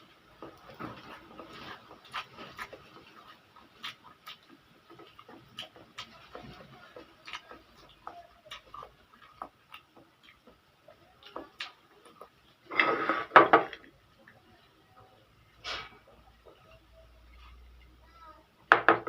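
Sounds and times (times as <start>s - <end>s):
person chewing noodles: 0.2s - 18.0s.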